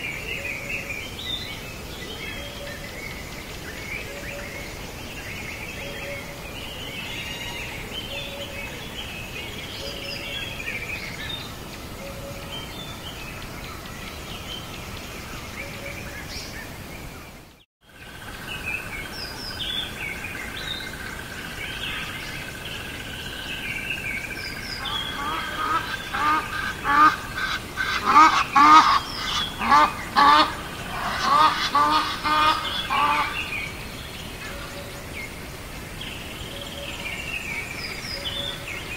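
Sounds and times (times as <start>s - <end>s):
birds chirping: 0.0s - 38.9s
rapid honking calls: 24.8s - 33.5s.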